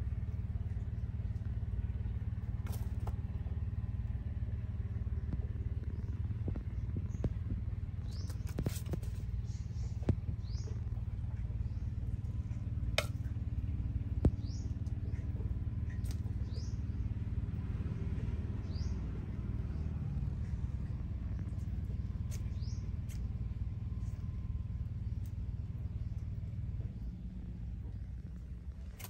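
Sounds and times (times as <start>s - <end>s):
small bird chirping: 5.0s - 24.2s.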